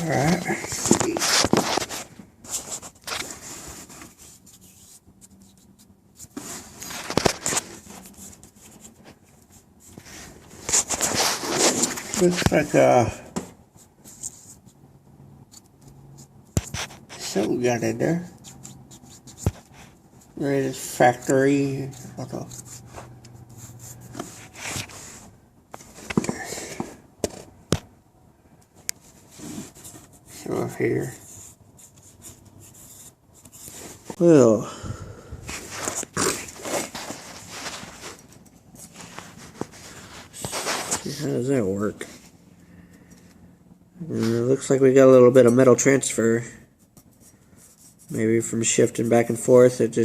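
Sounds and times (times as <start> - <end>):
rustling: 0.0 - 12.9, 35.4 - 43.4
light scraping of engine parts: 0.0 - 14.8, 15.4 - 27.6, 28.6 - 34.6, 35.4 - 43.5.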